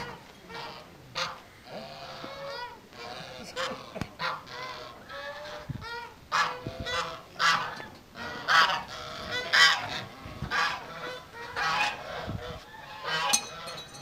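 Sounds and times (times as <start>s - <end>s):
farm birds calling loudly: 0.0s - 14.0s.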